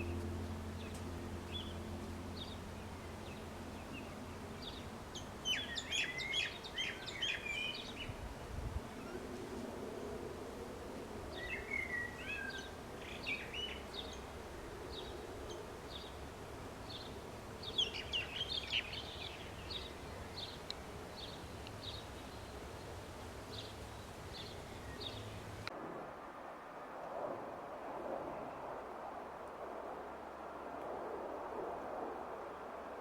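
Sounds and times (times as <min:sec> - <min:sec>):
songbirds chirping: 0:00.0 - 0:08.2, 0:11.3 - 0:25.7
outdoor background hiss: 0:00.0 - 0:26.8.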